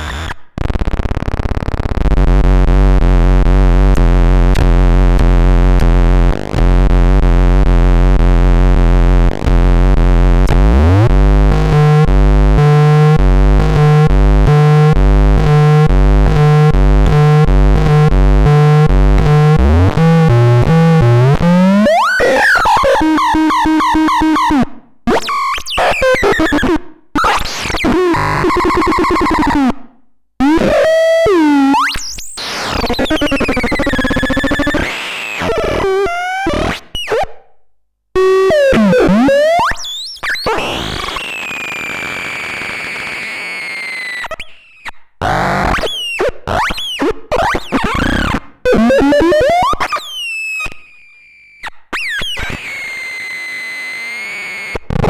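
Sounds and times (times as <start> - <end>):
synthesizer buzzing drone: 0.0 - 0.4, 6.6 - 22.1.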